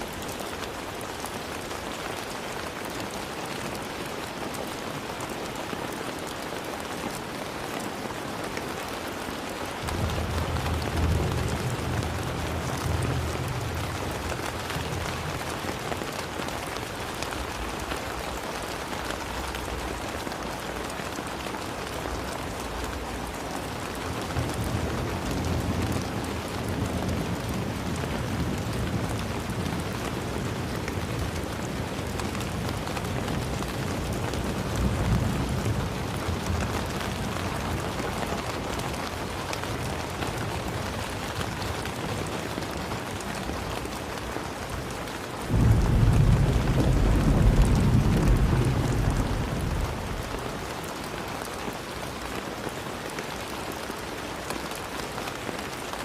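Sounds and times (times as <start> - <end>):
heavy rain pattering: 0.0 - 56.0.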